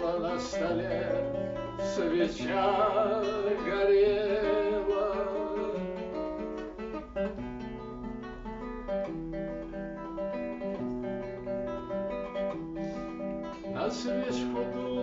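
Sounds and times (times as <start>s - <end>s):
person singing: 0.0s - 6.3s, 13.6s - 15.0s
acoustic guitar strumming: 0.0s - 15.0s.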